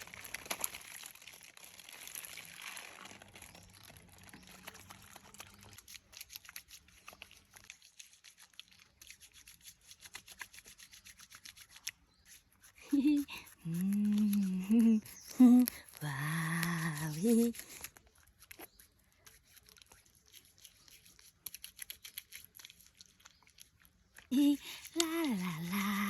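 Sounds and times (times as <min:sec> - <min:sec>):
crackling and rustling handling: 0:00.0 - 0:09.0.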